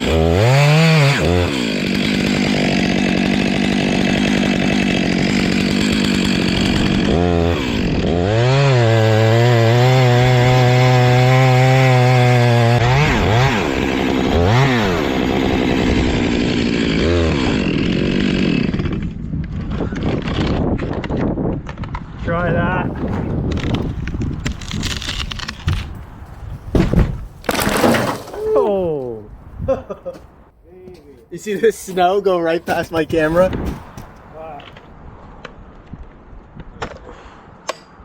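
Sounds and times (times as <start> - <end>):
chainsaw revving: 0.0 - 19.0.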